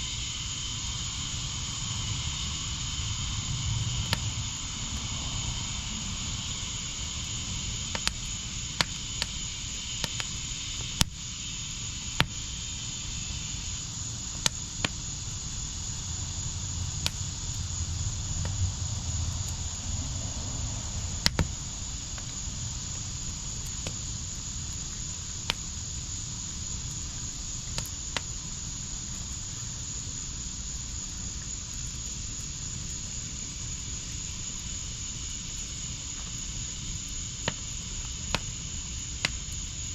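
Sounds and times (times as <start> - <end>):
fire burning with crackling pops: 0.0 - 39.9
insects trilling: 0.0 - 39.9.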